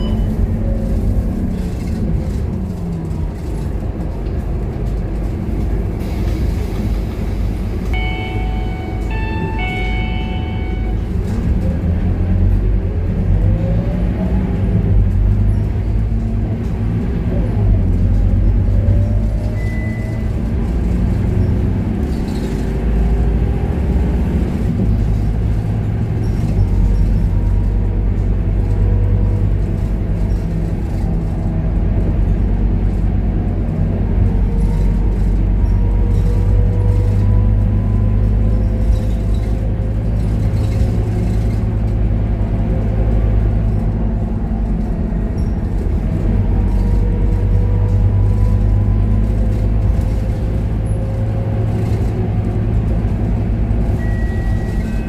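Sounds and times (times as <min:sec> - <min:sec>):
short electronic beeps: 0:00.0 - 0:00.4, 0:08.0 - 0:11.1, 0:54.0 - 0:55.0
bus diesel engine rumbling: 0:00.0 - 0:55.0.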